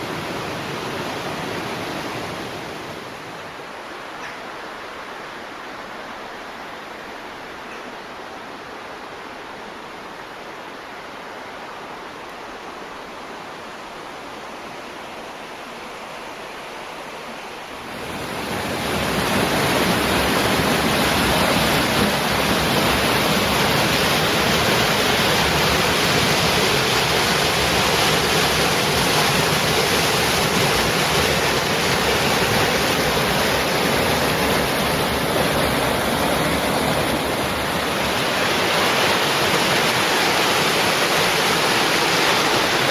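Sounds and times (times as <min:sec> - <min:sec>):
running water rushing: 0:00.0 - 0:42.9.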